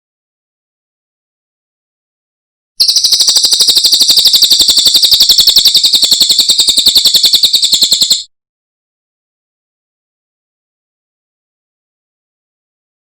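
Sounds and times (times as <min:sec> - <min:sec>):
bird high-pitched rapid trill: 0:02.8 - 0:08.3.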